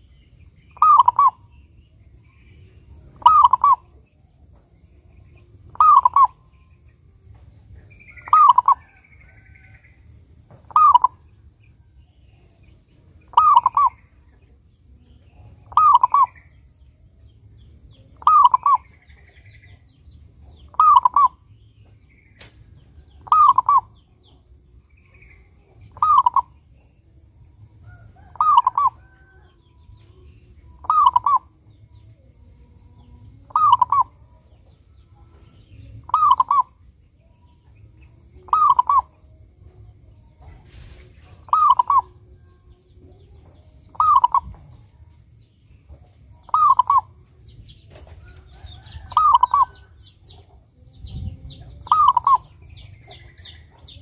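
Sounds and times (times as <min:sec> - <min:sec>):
faint low hum: 0:00.0 - 0:54.0
dove cooing: 0:00.8 - 0:01.4, 0:03.2 - 0:03.9, 0:05.7 - 0:06.4, 0:08.2 - 0:09.4, 0:10.7 - 0:11.2, 0:13.3 - 0:14.0, 0:15.6 - 0:16.4, 0:18.2 - 0:18.9, 0:20.7 - 0:21.4, 0:23.2 - 0:23.9, 0:25.9 - 0:26.5, 0:28.2 - 0:29.4, 0:30.8 - 0:31.5, 0:33.5 - 0:34.2, 0:36.0 - 0:36.8, 0:38.4 - 0:39.1, 0:41.5 - 0:42.2, 0:43.9 - 0:44.6, 0:46.5 - 0:47.2, 0:48.8 - 0:49.9, 0:51.6 - 0:53.8.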